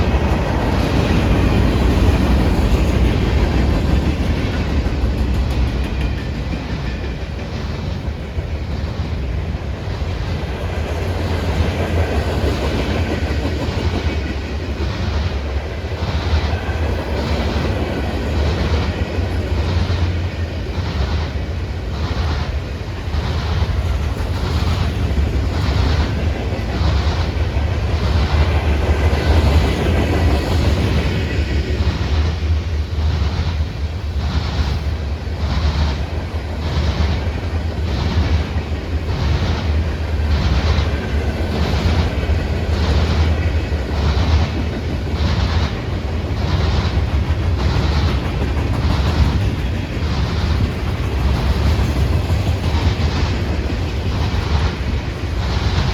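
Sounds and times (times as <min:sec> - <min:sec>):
freight train rumble: 0:00.0 - 0:55.9.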